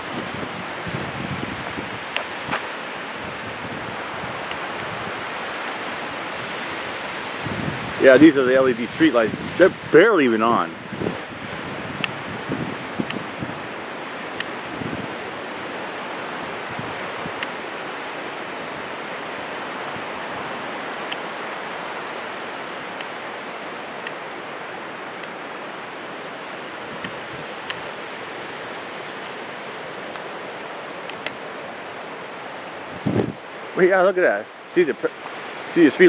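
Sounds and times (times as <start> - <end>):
wind blowing through trees: 0.0 - 36.0.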